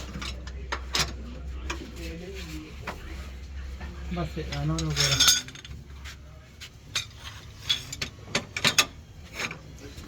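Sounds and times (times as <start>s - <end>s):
metal tools clinking: 4.5s - 5.8s, 6.9s - 9.6s.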